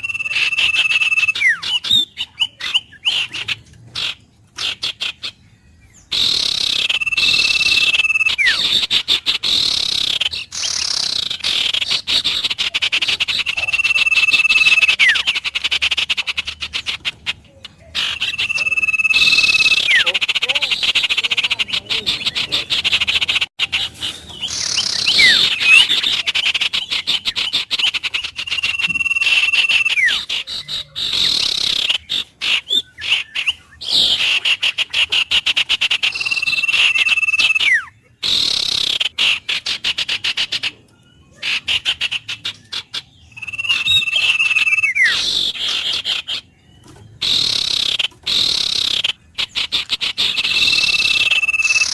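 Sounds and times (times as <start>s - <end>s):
whistled bird note: 0.0s - 3.5s, 6.0s - 8.9s, 9.5s - 15.4s, 17.9s - 21.0s, 24.0s - 26.3s, 26.9s - 34.2s, 43.3s - 45.6s, 50.2s - 51.9s
frogs calling: 0.0s - 5.4s, 6.0s - 23.8s, 24.4s - 46.5s, 47.2s - 51.9s.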